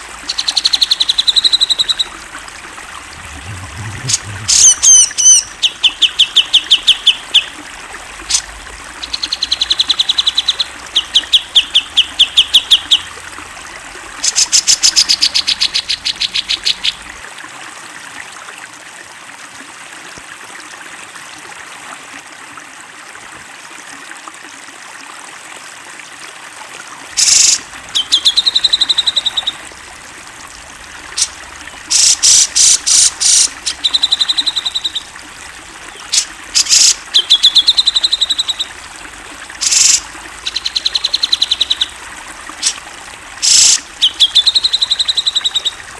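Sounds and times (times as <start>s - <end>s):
water trickling: 0.0s - 19.8s, 27.1s - 45.9s
bird singing rapid high notes: 3.2s - 7.6s, 27.2s - 29.6s, 31.0s - 45.8s.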